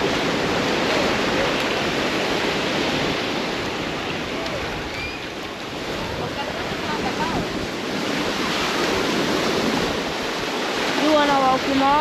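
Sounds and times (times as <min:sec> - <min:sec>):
ocean surf washing ashore: 0:00.0 - 0:12.0.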